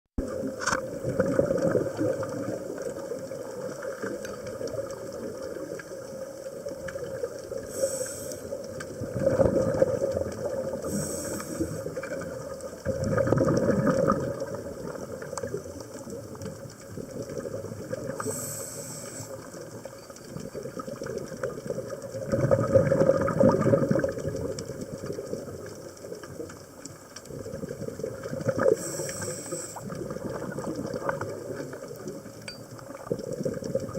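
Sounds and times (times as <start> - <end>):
exhaled bubbles bursting: 0.2 - 18.4, 19.0 - 33.9
regulator inhalation hiss: 7.6 - 8.6, 10.8 - 12.0, 18.2 - 19.5, 28.7 - 29.9.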